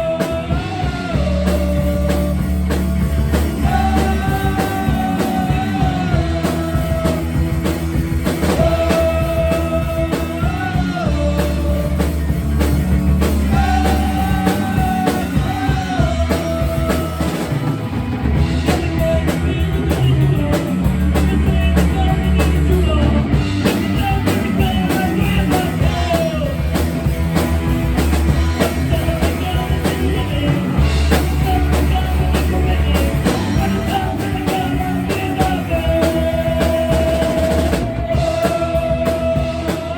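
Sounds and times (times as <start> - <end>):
bass guitar: 0.0 - 39.9
drum kit: 0.0 - 39.9.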